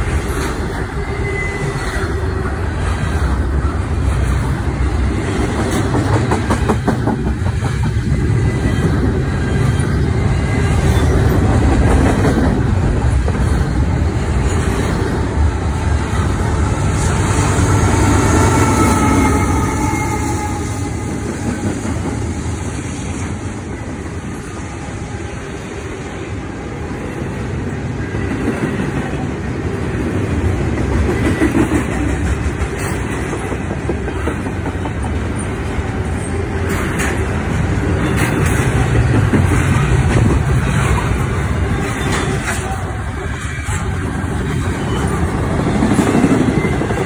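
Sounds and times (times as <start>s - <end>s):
freight train rumbling past: 0.0s - 47.0s
faint high squeal: 0.8s - 2.4s, 18.0s - 21.2s
wheels clacking over rail joints: 4.0s - 15.3s, 30.7s - 47.0s.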